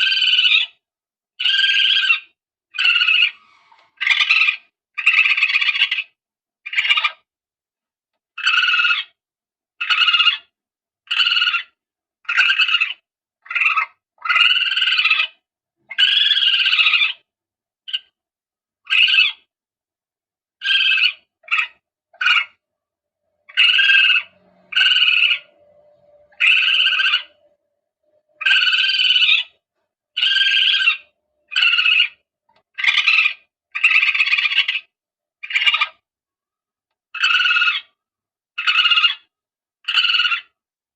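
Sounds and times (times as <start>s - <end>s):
palm civet calls: 1.4s - 7.2s, 9.8s - 10.5s, 11.1s - 17.2s, 20.6s - 22.6s, 23.4s - 27.6s, 28.2s - 29.6s, 30.2s - 36.0s, 37.2s - 38.0s, 38.6s - 39.3s, 39.9s - 40.5s
faint low hum: 23.4s - 28.8s.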